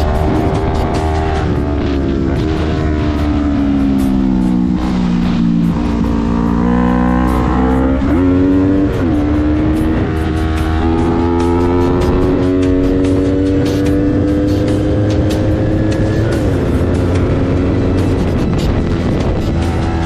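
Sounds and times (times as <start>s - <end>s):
motorcycle engine running: 0.0s - 20.0s
wind rushing over microphone: 15.6s - 20.0s.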